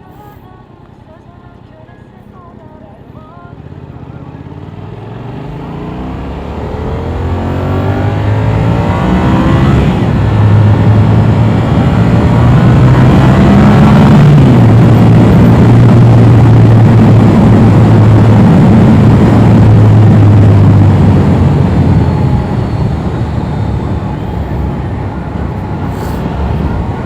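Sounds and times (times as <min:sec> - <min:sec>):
motorcycle engine accelerating: 0:03.3 - 0:27.0
wind rush: 0:06.0 - 0:27.0.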